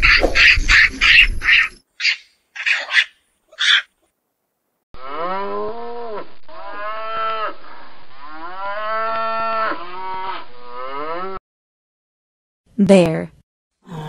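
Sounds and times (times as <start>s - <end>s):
cow mooing: 5.0s - 7.6s, 8.3s - 11.4s.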